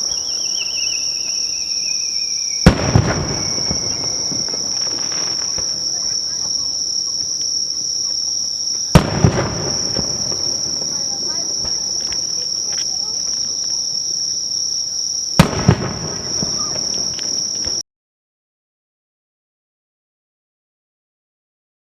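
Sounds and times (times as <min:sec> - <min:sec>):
firework shells bursting: 0:00.0 - 0:14.6, 0:15.3 - 0:17.8
insect trill: 0:00.0 - 0:17.8
rumbling echo: 0:09.0 - 0:12.1.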